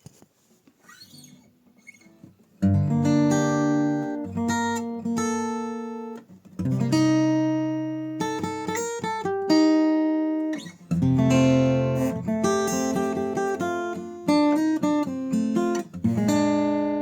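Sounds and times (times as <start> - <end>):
acoustic guitar chords ringing: 2.6 - 17.0.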